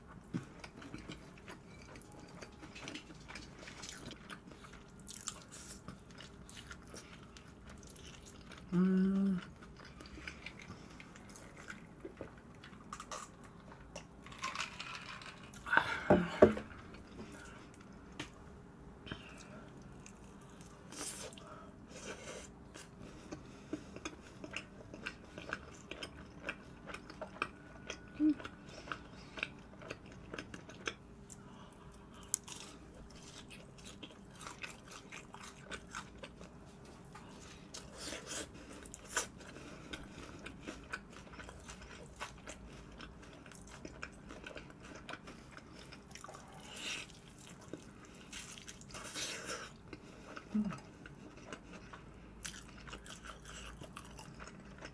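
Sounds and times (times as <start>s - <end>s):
crunching fried food: 9.4s - 15.7s, 37.4s - 54.9s.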